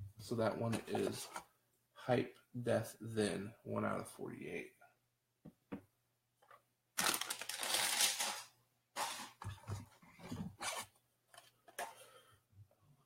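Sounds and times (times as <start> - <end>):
packaging crinkling: 7.0 - 9.2
packaging ripping: 7.0 - 9.2.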